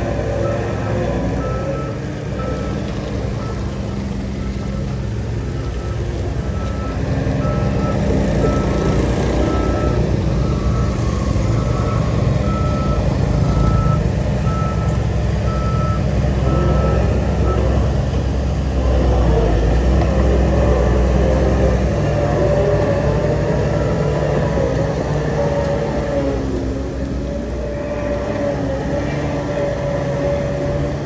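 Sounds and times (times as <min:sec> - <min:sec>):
diesel engine rumble: 0:00.0 - 0:31.0
reversing alarm beeping: 0:00.1 - 0:18.2, 0:22.0 - 0:26.1.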